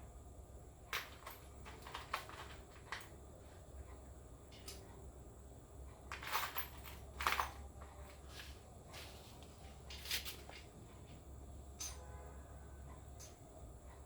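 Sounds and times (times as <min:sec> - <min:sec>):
low steady hum: 0:00.0 - 0:14.0
scraping clicking handling sounds: 0:00.9 - 0:03.2.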